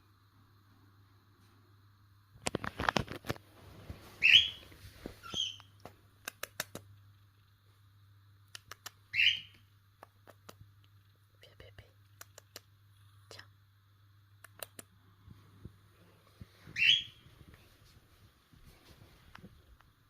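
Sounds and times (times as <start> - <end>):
bird high chirps: 4.2 - 4.6, 5.2 - 5.8, 9.1 - 9.6, 16.7 - 17.3
sharp clicks and taps: 5.8 - 7.5, 8.5 - 12.7, 14.4 - 14.9.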